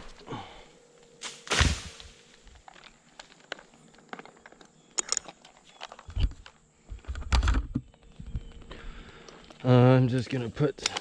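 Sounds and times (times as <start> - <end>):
climbing gear clicks and scrapes: 2.4 - 11.0.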